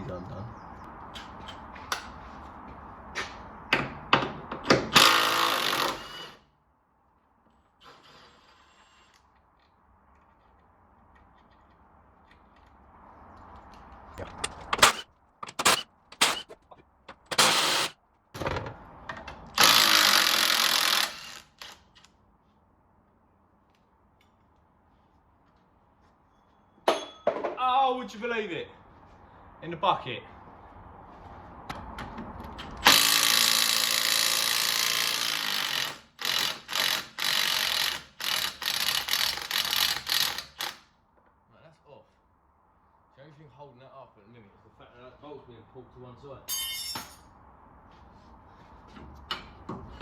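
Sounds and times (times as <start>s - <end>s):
impact wrench bursts: 4.8s - 6.5s, 14.4s - 18.0s, 19.6s - 21.8s, 32.8s - 40.8s.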